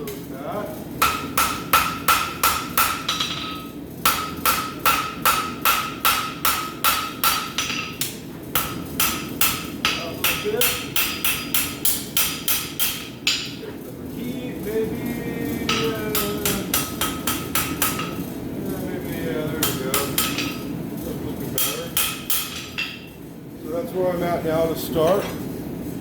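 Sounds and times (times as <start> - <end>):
hammer striking steel on anvil: 1.0 - 13.6, 15.7 - 18.2, 19.6 - 20.7, 21.6 - 23.2.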